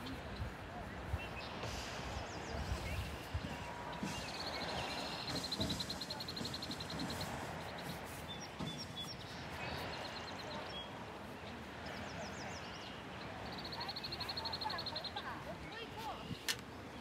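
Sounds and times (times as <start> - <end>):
bird chirps: 1.2 - 11.0.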